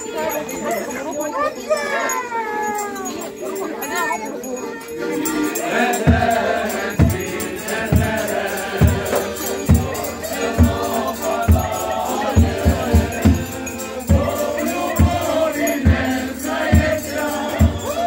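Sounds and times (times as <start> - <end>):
group singing folk melody: 0.0 - 2.0, 3.2 - 18.0
drum beating: 5.8 - 18.0.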